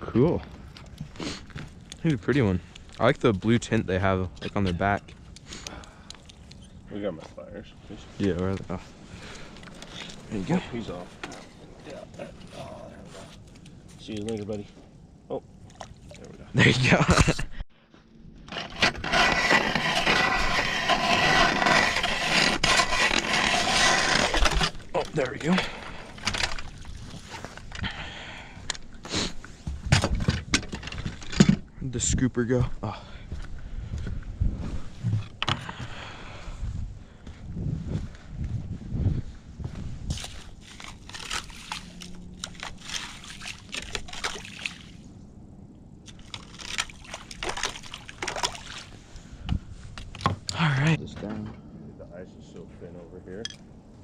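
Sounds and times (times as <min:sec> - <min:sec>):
water sloshing and trickling: 0:13.3 - 0:16.6, 0:24.2 - 0:27.8, 0:40.1 - 0:45.2, 0:46.0 - 0:50.2
grinding scrape on ice: 0:18.5 - 0:26.3
ice skimmer crunching scrapes: 0:18.5 - 0:27.7, 0:40.1 - 0:45.0, 0:46.1 - 0:49.2.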